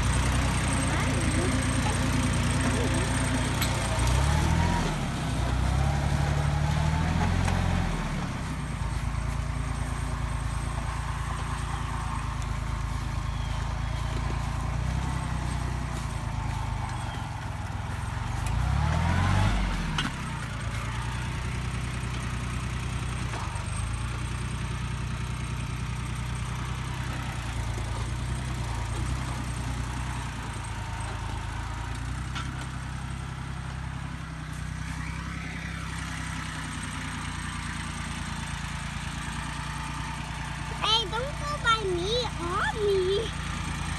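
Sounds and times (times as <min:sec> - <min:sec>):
diesel tractor engine running: 0:00.0 - 0:43.9.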